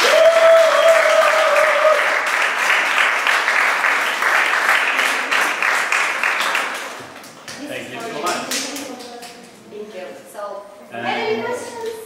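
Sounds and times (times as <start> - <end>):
long held cheering tone: 0.0 - 2.2
audience applauding: 0.0 - 9.4.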